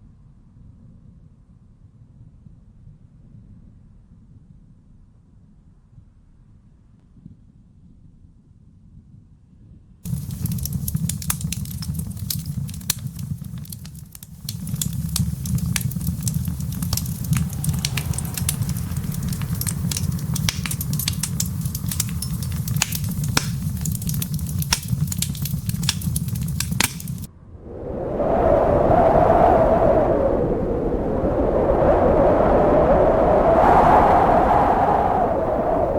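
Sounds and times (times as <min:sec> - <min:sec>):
wood fire crackling and popping: 0:10.1 - 0:27.3
low rumble: 0:10.1 - 0:35.9.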